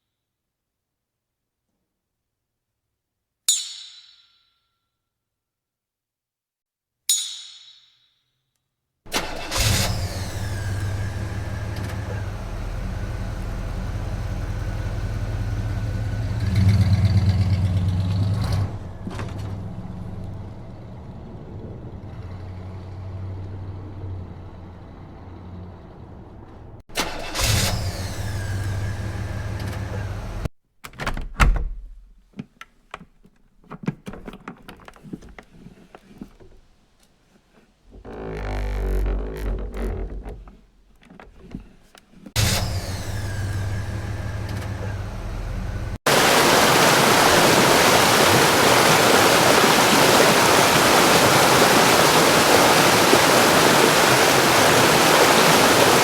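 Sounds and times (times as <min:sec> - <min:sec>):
vehicle engine running: 0:09.8 - 0:26.8, 0:28.1 - 0:30.5, 0:42.4 - 0:56.0.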